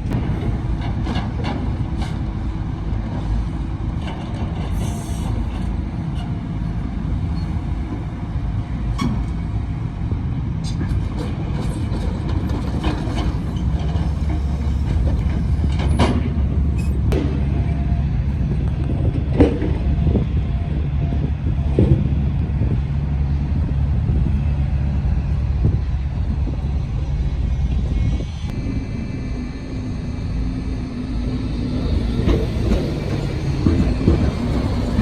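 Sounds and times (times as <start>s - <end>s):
wheels clacking on rails: 0.0s - 28.8s, 30.0s - 35.0s
tram rumbling: 0.0s - 35.0s
wheels squealing on rails: 4.2s - 8.1s, 10.6s - 19.1s, 19.8s - 35.0s.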